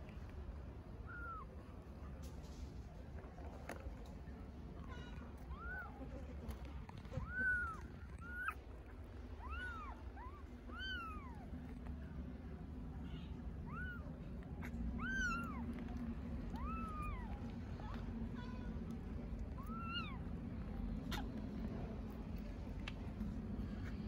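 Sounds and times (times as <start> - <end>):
steady low hum: 0.0 - 24.0
kittens meowing: 1.0 - 1.6, 5.0 - 6.3, 7.0 - 12.2, 13.0 - 18.0, 19.0 - 21.5.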